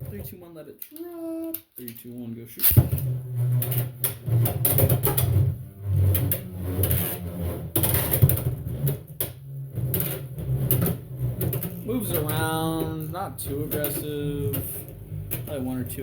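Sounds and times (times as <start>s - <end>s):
spinning top humming: 8.7s - 16.0s.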